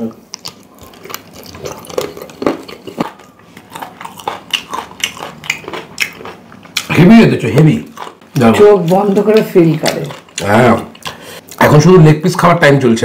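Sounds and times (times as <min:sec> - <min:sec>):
man chewing and lip smacking: 0:00.2 - 0:06.9, 0:08.8 - 0:11.6.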